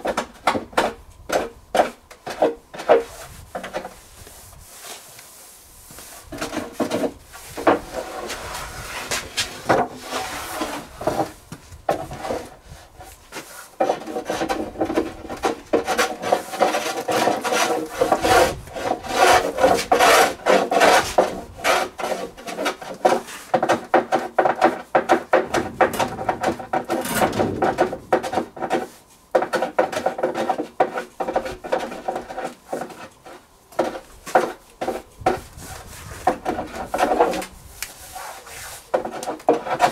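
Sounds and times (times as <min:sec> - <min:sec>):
rasp scraping wood: 0:05.8 - 0:39.9.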